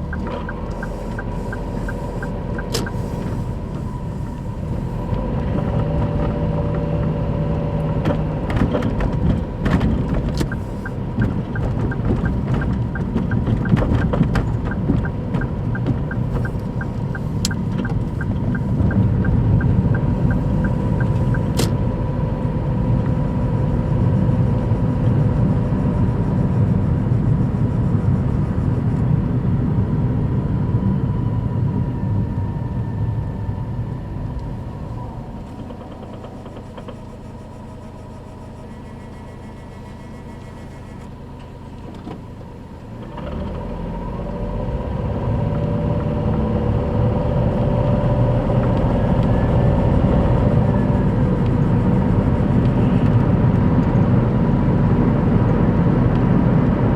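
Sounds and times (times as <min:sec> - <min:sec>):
thin engine whine: 0:00.0 - 0:13.1, 0:13.7 - 0:56.9
car engine rumbling: 0:00.0 - 0:56.9
regular light ticks: 0:00.1 - 0:03.4, 0:10.3 - 0:21.7.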